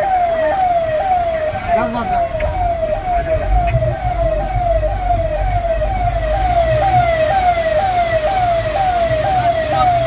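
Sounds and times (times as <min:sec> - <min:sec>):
electronic siren wailing: 0:00.0 - 0:10.0
low rumble: 0:01.6 - 0:09.6.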